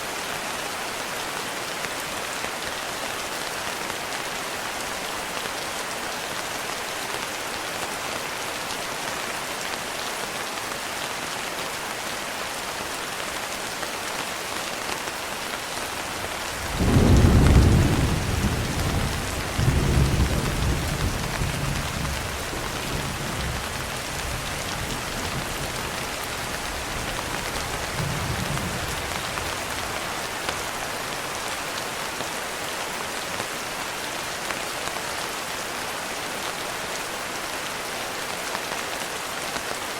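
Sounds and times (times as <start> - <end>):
rain hiss: 0.0 - 39.9
thunder rolling: 16.6 - 22.1.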